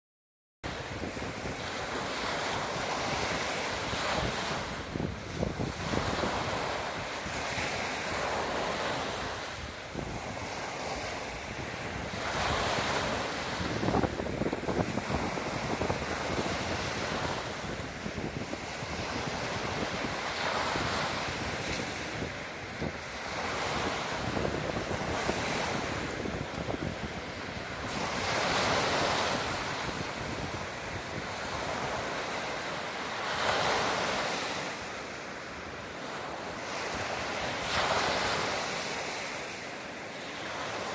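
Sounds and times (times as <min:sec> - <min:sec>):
wind buffeting microphone: 0:00.7 - 0:32.6
surf breaking on beach: 0:00.7 - 0:40.9.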